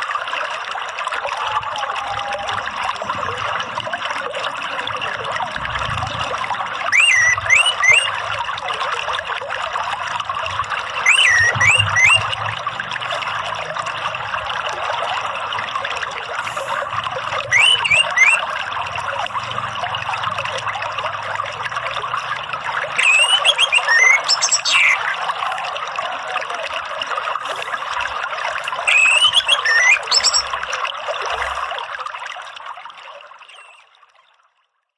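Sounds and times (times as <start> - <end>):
water trickling: 0.0 - 34.9
thrush whistling: 6.8 - 8.4, 11.0 - 13.7, 16.5 - 18.8, 22.9 - 25.6, 28.7 - 30.6, 33.5 - 33.8.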